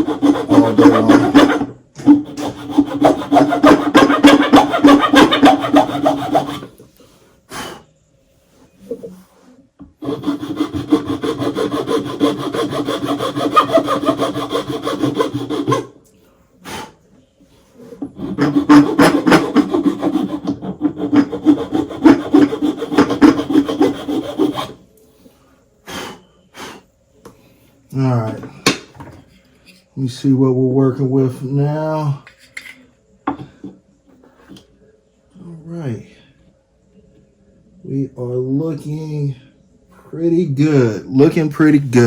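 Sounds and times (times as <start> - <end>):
hand file rasping on wood: 0.0 - 6.7, 10.0 - 15.9, 18.0 - 24.8.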